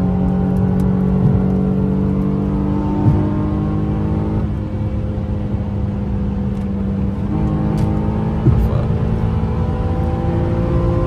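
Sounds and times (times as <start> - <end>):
car engine running: 0.0 - 11.0
low road rumble: 0.0 - 11.0
brief thump: 3.0 - 3.4.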